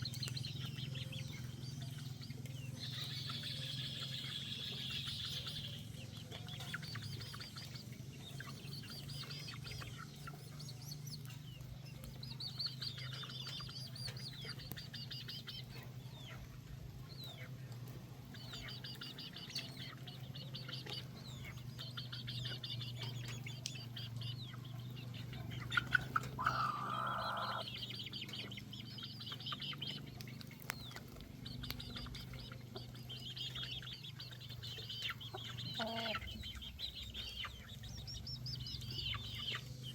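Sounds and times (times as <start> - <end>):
chicks peeping: 0.0 - 39.9
hen clucking call: 25.6 - 27.7, 35.1 - 36.6.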